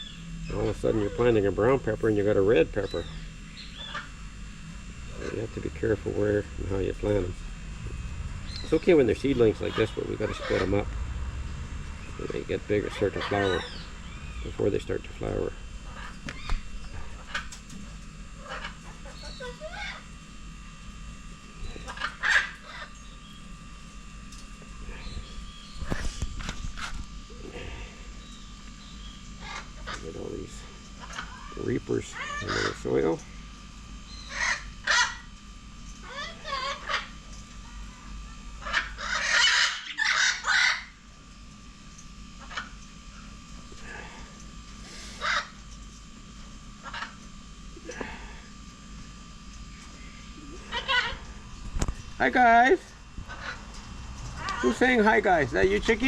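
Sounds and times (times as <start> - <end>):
birds calling: 0.0 - 56.0
harsh bird squawks: 2.8 - 4.2, 11.8 - 17.6, 18.4 - 20.1, 21.8 - 23.1, 31.0 - 32.9, 34.1 - 35.3, 36.0 - 37.8, 38.6 - 41.0, 45.0 - 45.6, 46.8 - 47.2, 50.1 - 51.4, 53.2 - 53.8.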